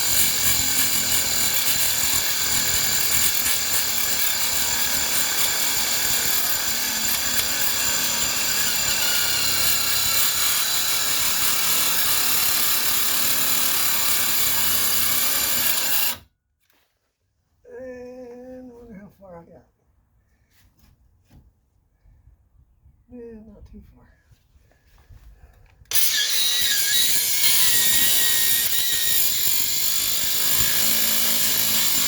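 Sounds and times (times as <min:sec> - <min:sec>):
angle grinder cutting metal: 0:00.0 - 0:16.2, 0:25.9 - 0:32.0.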